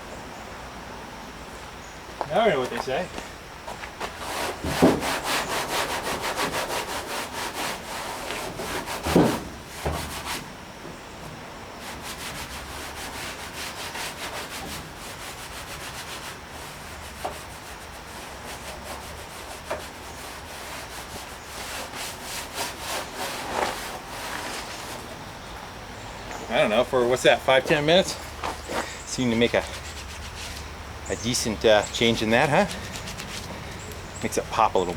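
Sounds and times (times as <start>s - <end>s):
hand rubbing painted metal: 11.8s - 25.3s, 26.4s - 34.9s.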